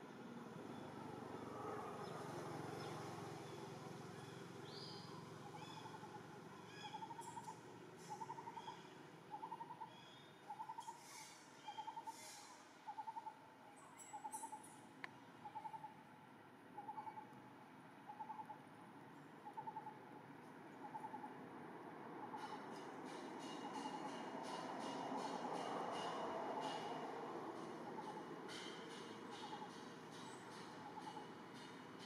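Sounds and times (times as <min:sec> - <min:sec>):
faint high bird chirps: 0:04.2 - 0:14.8, 0:15.4 - 0:16.0, 0:16.8 - 0:17.3, 0:18.1 - 0:18.6.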